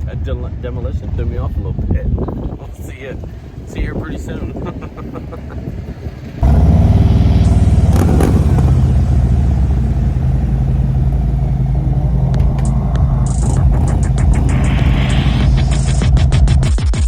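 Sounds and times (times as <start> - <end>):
motorcycle engine running: 2.3 - 16.9.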